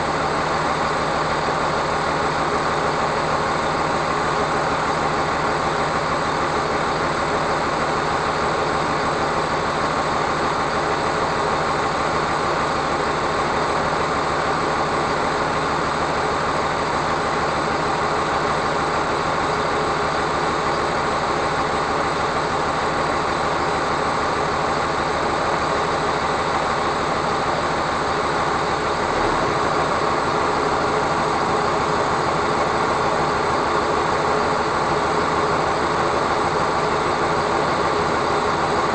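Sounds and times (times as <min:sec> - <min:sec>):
truck engine: 0:17.4 - 0:38.9.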